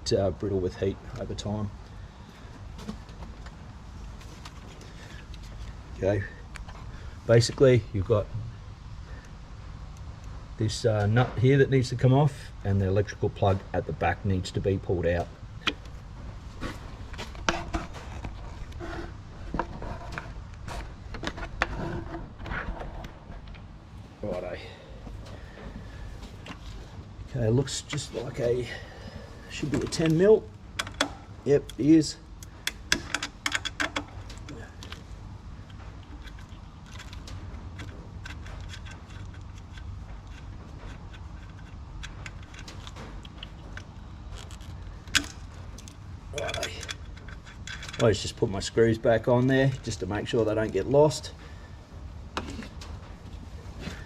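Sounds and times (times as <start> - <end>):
hand tools clicking and tapping: 30.8 - 31.8, 32.4 - 48.1
socket ratchet clicking: 32.4 - 35.0.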